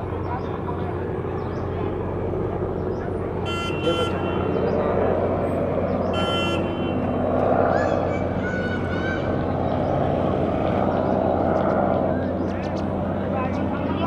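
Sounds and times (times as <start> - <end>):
road traffic rumble: 0.0 - 14.0
vehicle horn honking: 3.4 - 4.8, 6.1 - 7.2.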